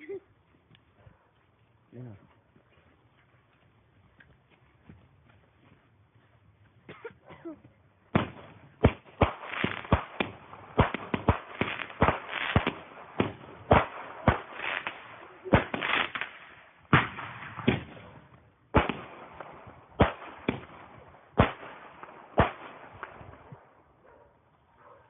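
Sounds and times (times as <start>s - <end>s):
firework bangs with crackling: 8.1s - 23.6s.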